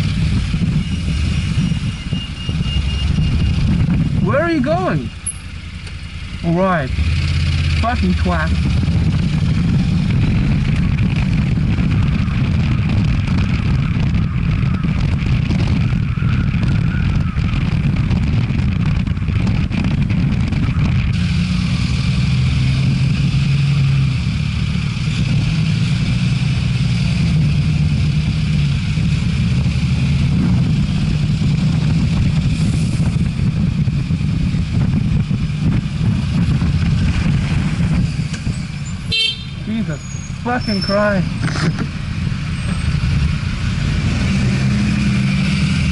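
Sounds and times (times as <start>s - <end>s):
wind rushing over microphone: 0.0s - 5.4s, 6.2s - 45.9s
motorcycle engine running: 0.0s - 45.9s.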